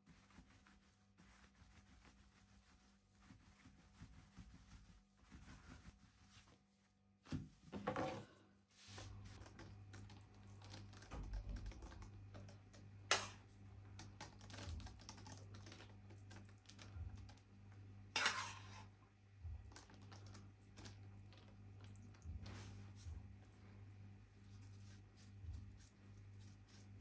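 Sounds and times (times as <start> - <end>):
taps and clicks of food preparation: 9.4 - 17.5
steady low hum: 18.9 - 27.0.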